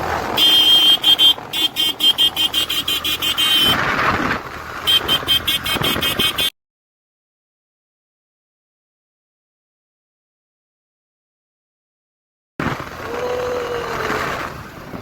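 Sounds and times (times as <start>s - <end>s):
road noise: 0.0s - 6.6s, 12.6s - 15.0s
high-pitched horn beeping: 0.4s - 3.8s, 4.9s - 6.5s.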